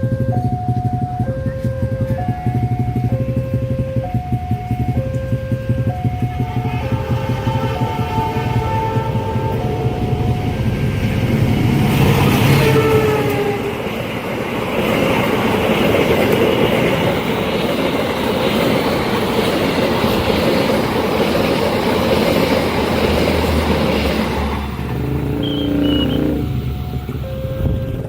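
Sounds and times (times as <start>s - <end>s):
train wheels rumbling on rails: 0.0s - 28.0s
faint train horn: 6.4s - 10.8s, 12.3s - 14.0s, 25.0s - 28.0s.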